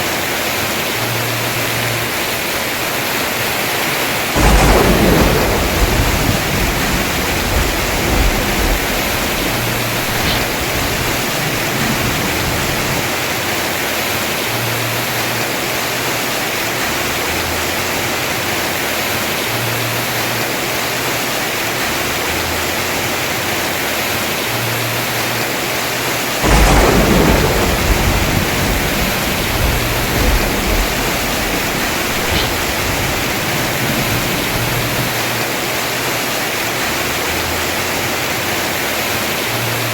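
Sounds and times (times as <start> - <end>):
heavy rain on a roof: 0.0 - 39.9
thunder rumbling: 4.2 - 14.9, 26.4 - 35.8.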